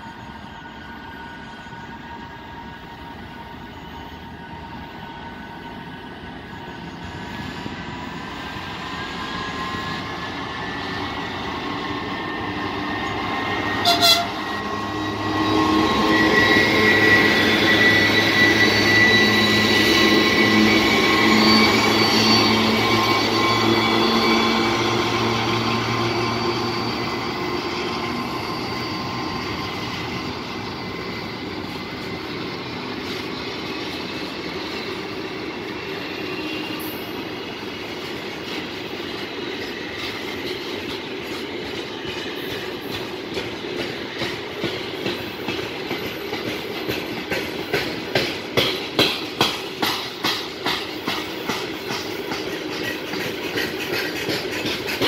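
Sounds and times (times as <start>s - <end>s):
diesel locomotive engine drone: 0.0s - 55.0s
train wheels clicking over rail joints: 37.2s - 55.0s.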